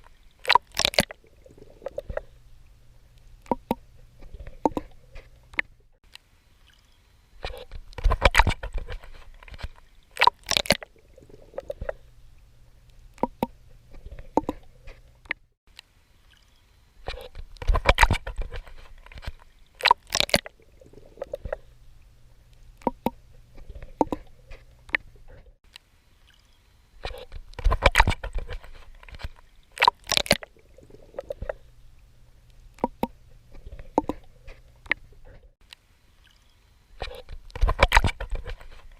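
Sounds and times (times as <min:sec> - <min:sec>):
water lapping: 0:00.0 - 0:15.5, 0:16.1 - 0:38.9.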